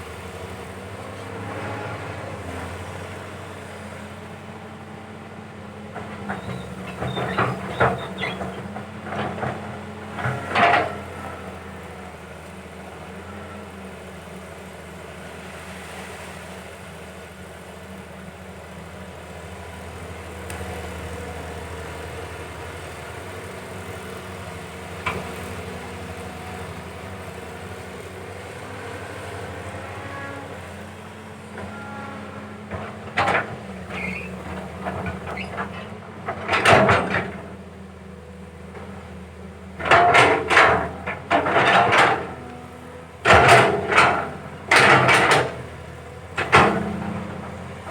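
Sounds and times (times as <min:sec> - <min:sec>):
excavator diesel engine running: 0:00.0 - 0:47.9
metallic clanks and knocks: 0:06.0 - 0:11.0, 0:32.7 - 0:37.6, 0:39.8 - 0:47.9.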